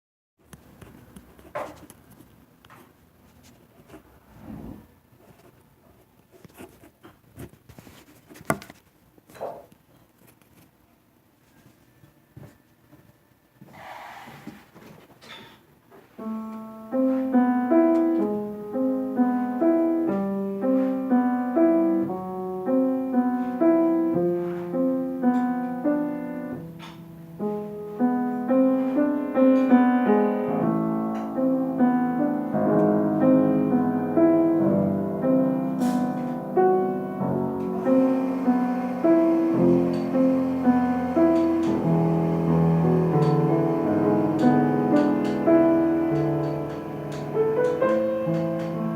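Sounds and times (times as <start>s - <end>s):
solo piano playing: 16.2s - 48.9s.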